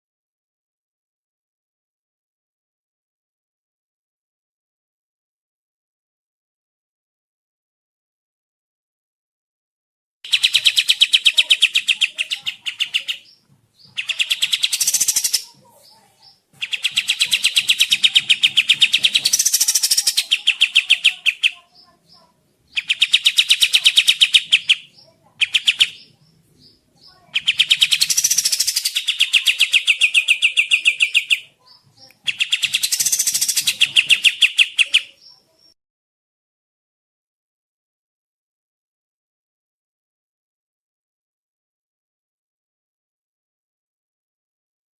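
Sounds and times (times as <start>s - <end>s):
bird song with rapid high notes: 10.2s - 35.8s.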